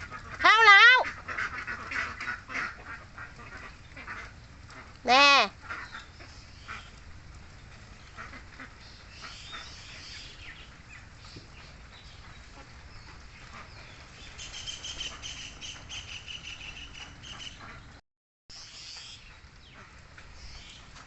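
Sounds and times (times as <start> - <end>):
low steady background noise: 0.0 - 17.9
birds calling: 5.4 - 21.0.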